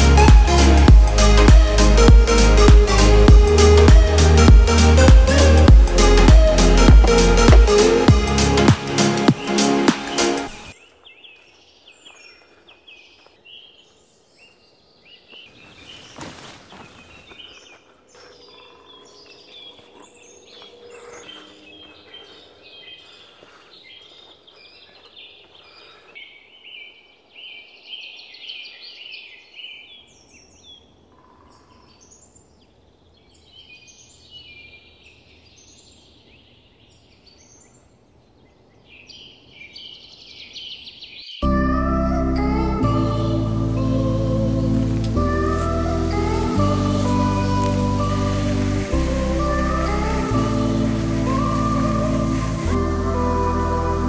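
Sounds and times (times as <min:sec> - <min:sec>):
small birds chirping: 0:09.2 - 0:41.5.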